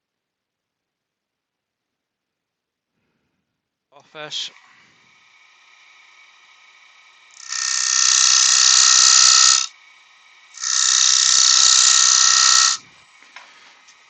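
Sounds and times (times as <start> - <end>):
lathe tool cutting wood: 4.5 - 14.0.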